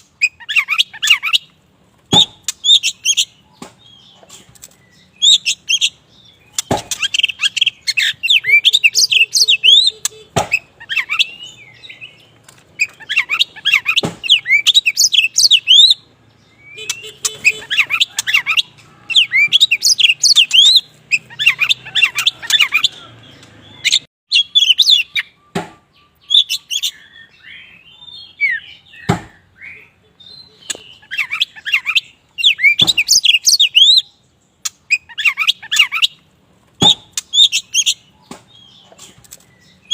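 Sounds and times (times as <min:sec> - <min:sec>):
magpie-robin singing: 0:00.0 - 0:39.9
sharp knocks: 0:06.6 - 0:07.1, 0:14.0 - 0:14.3, 0:25.5 - 0:25.8, 0:29.0 - 0:29.4, 0:36.8 - 0:37.2.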